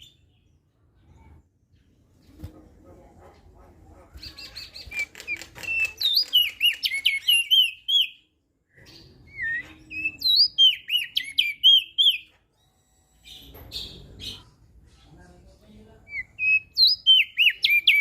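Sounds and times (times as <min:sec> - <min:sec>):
bird singing whistled notes: 0:04.8 - 0:14.0, 0:16.1 - 0:18.0.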